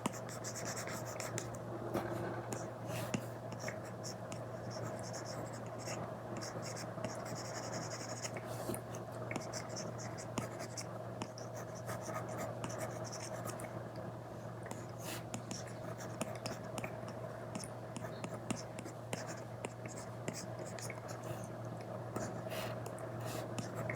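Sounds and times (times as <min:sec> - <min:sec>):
low hum: 0:01.4 - 0:03.0.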